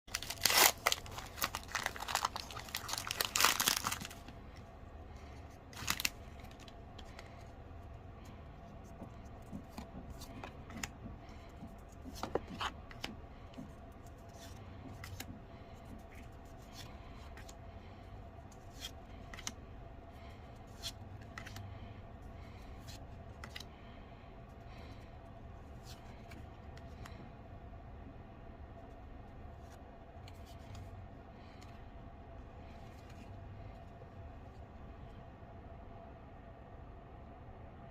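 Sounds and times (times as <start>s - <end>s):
foil wrapper tearing and crinkling: 0.1s - 4.2s, 5.8s - 6.6s
cards clicking and rustling: 0.1s - 4.4s, 5.7s - 7.4s, 8.9s - 13.7s, 18.6s - 19.6s, 20.7s - 21.7s.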